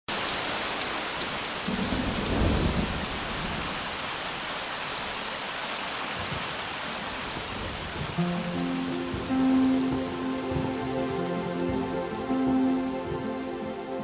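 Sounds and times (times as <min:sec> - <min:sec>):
rain falling: 0:00.1 - 0:14.0
low thunder roll: 0:01.7 - 0:03.8.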